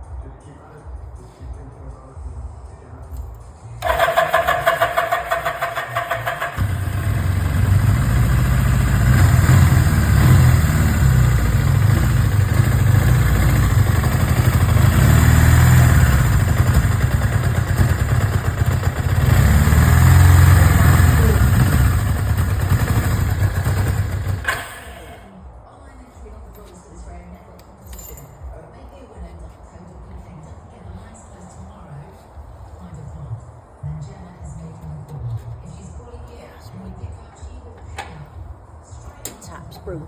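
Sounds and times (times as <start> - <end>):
motorcycle electric starter cranking: 3.8 - 25.2
motorcycle engine running: 3.8 - 25.3.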